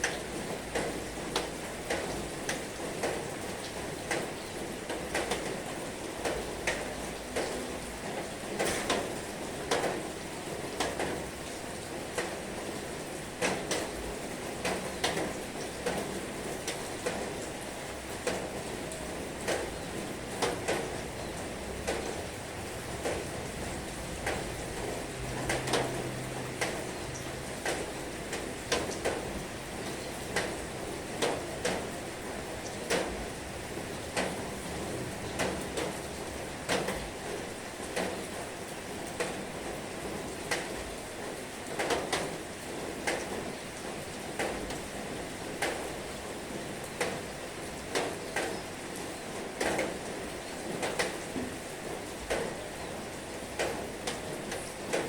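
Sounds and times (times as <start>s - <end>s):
heavy rain hissing: 17.3s - 29.8s.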